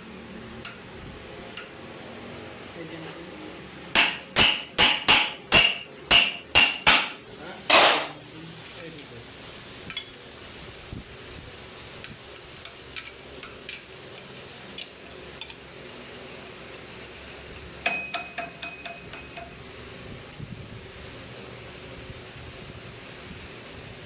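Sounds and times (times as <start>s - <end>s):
steady background hum: 0.0s - 24.0s
loud metal clank ringing: 4.0s - 8.2s
light metallic clinks of tools: 17.9s - 19.6s.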